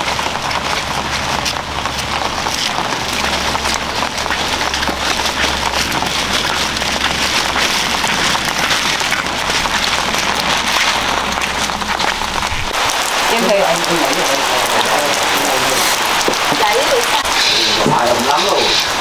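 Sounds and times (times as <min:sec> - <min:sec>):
food sizzling in hot oil: 0:10.6 - 0:19.0.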